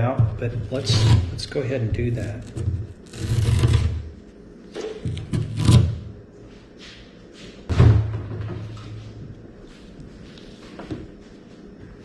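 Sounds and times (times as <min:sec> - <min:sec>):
thuds and knocks: 0:07.7 - 0:08.7.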